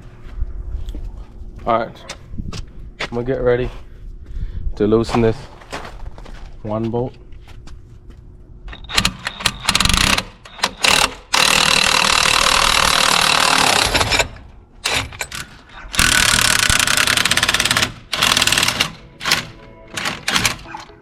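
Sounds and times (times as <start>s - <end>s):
impact wrench hammering on bolt: 16.0s - 19.4s.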